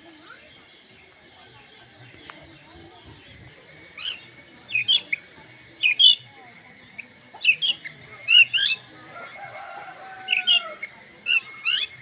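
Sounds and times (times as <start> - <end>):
songbird chirping: 0.0 - 12.0
distant rooster crowing: 9.0 - 10.9.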